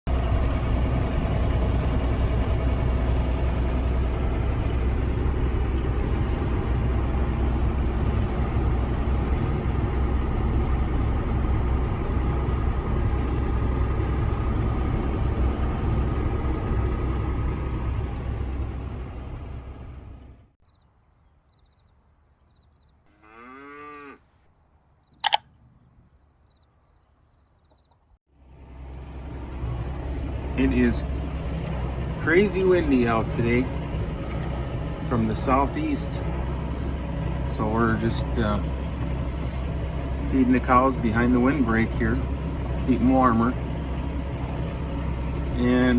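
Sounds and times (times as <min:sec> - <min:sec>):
heavy low rumble: 0:00.1 - 0:20.6, 0:28.4 - 0:45.9
cattle mooing: 0:23.1 - 0:24.2
sharp click: 0:25.2 - 0:25.5.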